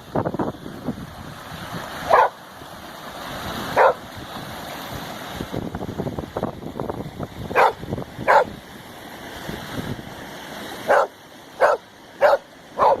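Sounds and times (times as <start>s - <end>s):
dog barking: 2.1s - 2.4s, 3.8s - 4.0s, 7.5s - 8.5s, 10.9s - 13.0s.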